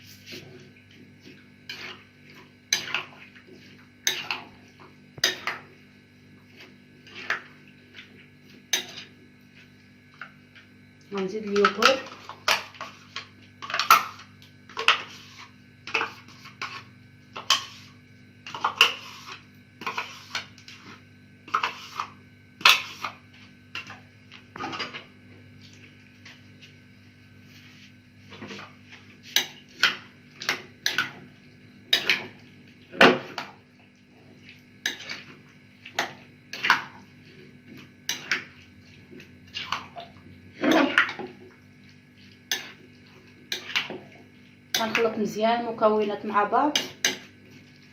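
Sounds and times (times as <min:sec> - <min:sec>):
spoon clinking and scraping bowl: 0:18.5 - 0:20.8, 0:21.5 - 0:23.2, 0:42.5 - 0:43.9.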